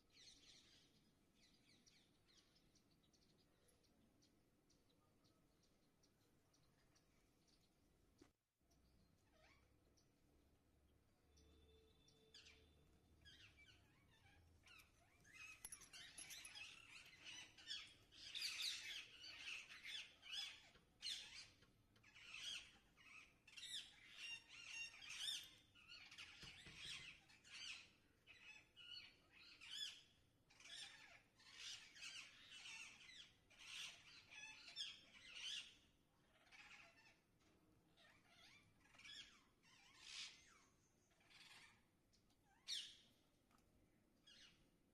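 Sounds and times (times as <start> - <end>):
birds chattering: 11.4 - 43.2.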